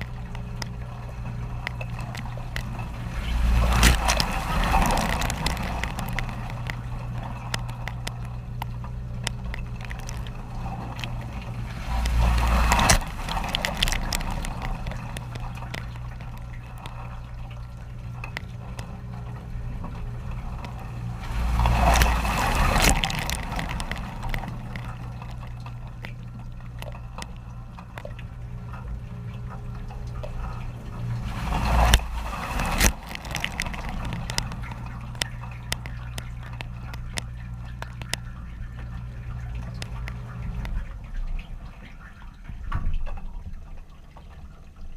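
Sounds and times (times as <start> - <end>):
dishwasher pump hum: 0.0 - 44.9
small clicks and drips: 0.0 - 44.9.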